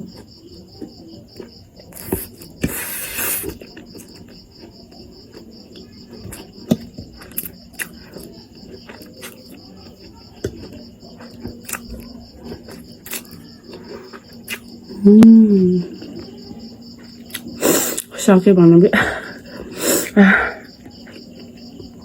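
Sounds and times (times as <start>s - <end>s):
chewing and slurping noodles: 0.0s - 14.9s
cricket chirping: 0.0s - 22.0s
person humming: 15.0s - 16.0s.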